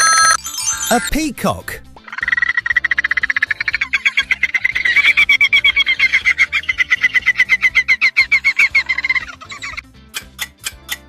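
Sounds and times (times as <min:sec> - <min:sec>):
dolphin chattering: 0:02.0 - 0:10.9.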